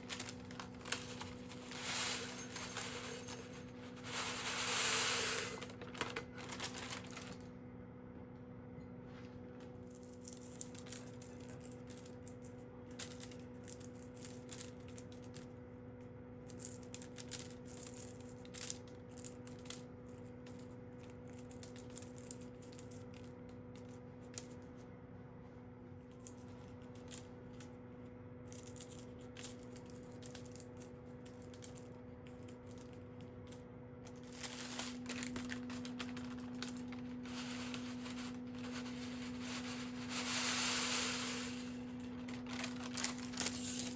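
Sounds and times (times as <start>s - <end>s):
dried herb leaves rattling: 0.0s - 7.5s, 34.1s - 43.9s
steady hiss: 40.0s - 41.8s.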